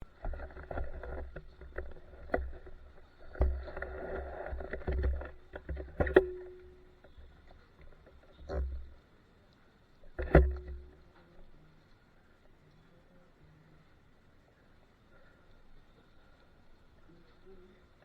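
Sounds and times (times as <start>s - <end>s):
exhaust pops and cracks: 10.0s - 11.2s.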